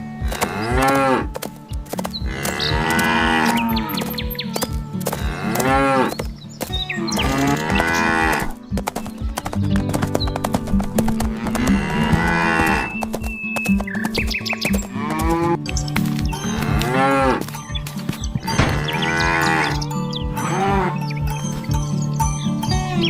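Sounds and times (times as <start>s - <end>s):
background music with bass line: 0.0s - 12.9s, 14.6s - 23.0s
cow mooing: 0.2s - 1.3s, 2.3s - 4.0s, 5.2s - 6.2s, 7.0s - 8.6s, 11.3s - 13.0s, 16.6s - 17.5s, 18.4s - 19.8s, 20.4s - 21.1s.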